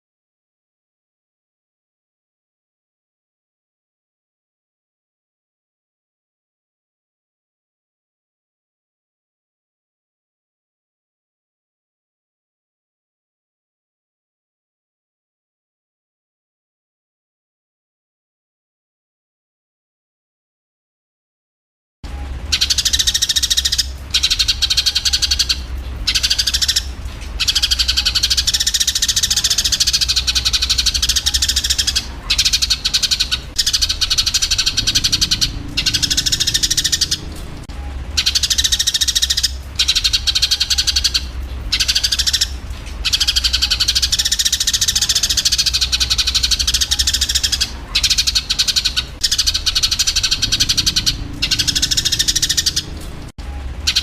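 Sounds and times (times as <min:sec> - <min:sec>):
steady low hum: 0:22.0 - 0:54.0
sparrows chirping: 0:22.4 - 0:53.2.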